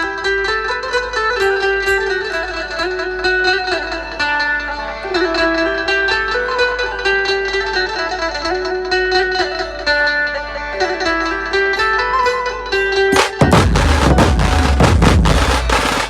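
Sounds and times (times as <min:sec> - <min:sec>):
band music through sound system: 0:13.1 - 0:16.0.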